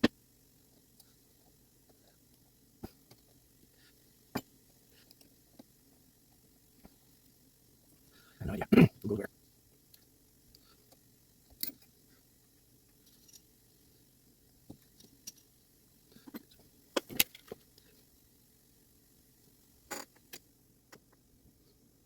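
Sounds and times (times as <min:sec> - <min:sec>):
small metal parts clicking: 0:12.9 - 0:13.5, 0:14.8 - 0:15.6, 0:16.2 - 0:17.9.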